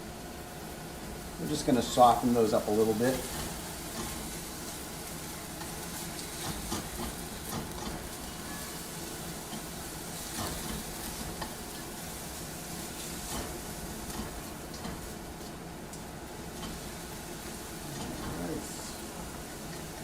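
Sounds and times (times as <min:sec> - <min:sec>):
food sizzling in a pan: 0:00.0 - 0:20.0
stirring clicks and scrapes: 0:03.2 - 0:08.2.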